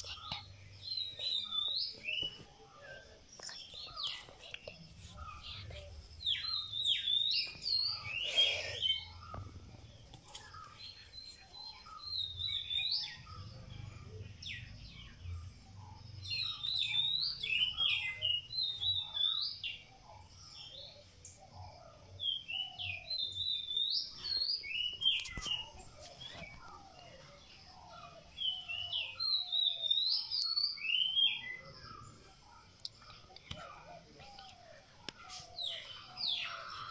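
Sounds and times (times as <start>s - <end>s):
songbird chirping: 0.0s - 36.9s.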